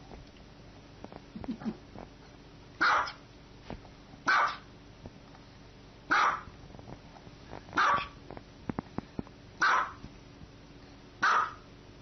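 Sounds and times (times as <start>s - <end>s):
small dog barking: 2.8s - 3.2s, 4.3s - 4.7s, 6.1s - 6.5s, 7.8s - 8.2s, 9.6s - 10.0s, 11.2s - 11.7s.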